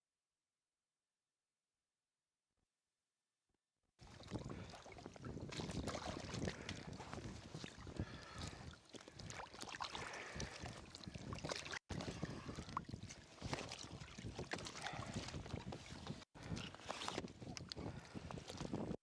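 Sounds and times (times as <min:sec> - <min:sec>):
water splashing around kayak: 0:04.0 - 0:18.9.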